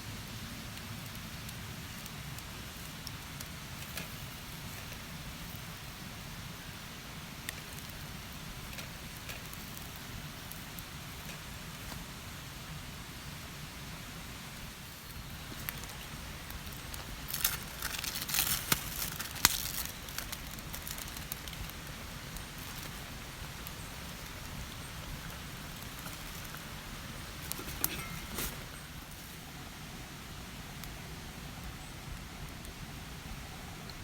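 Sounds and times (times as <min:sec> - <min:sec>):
sharp clicks and rustles: 0:15.5 - 0:29.4.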